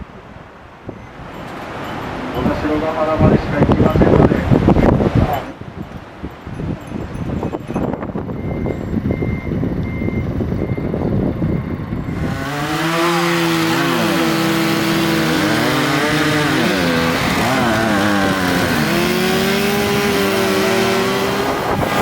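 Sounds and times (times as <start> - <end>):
chainsaws running fast: 12.1 - 22.0.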